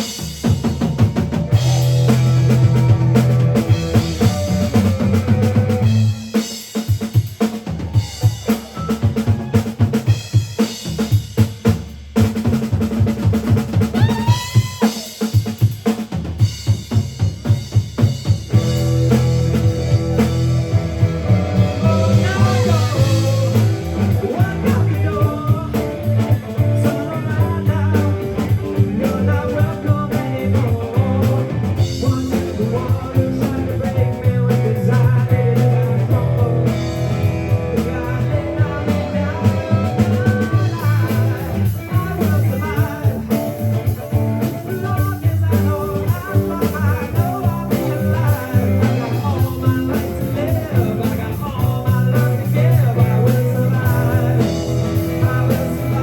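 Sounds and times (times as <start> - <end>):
electric guitars: 0.0 - 10.6, 18.0 - 56.0
bass guitar: 0.0 - 56.0
drum kit: 0.0 - 56.0
lead vocal singing: 19.5 - 56.0.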